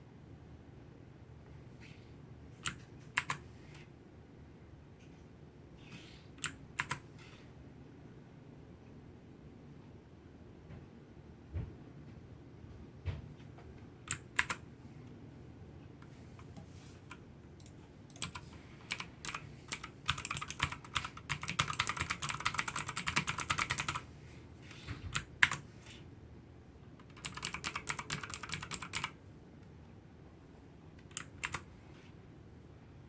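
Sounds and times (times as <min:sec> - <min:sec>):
clicky keyboard typing: 0:02.6 - 0:03.4, 0:06.4 - 0:07.0, 0:14.1 - 0:14.6, 0:16.4 - 0:24.0, 0:25.1 - 0:25.6, 0:27.0 - 0:29.2, 0:31.0 - 0:31.7.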